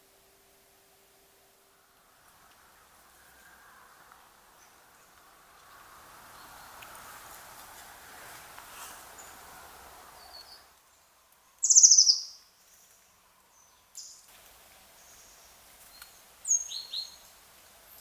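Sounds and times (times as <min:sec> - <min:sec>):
faint steady hiss: 0:00.0 - 0:18.0
high bird chirps: 0:11.6 - 0:12.4.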